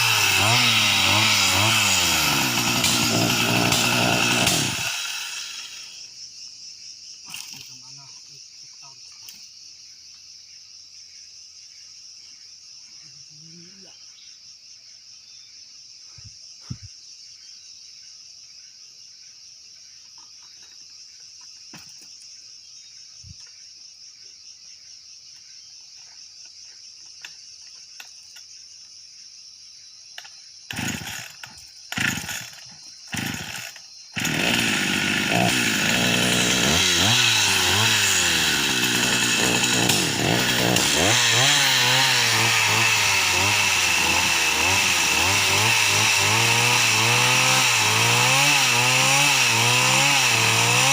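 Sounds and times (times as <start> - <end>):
chainsaw engine running: 0.0 - 6.1, 30.7 - 50.9.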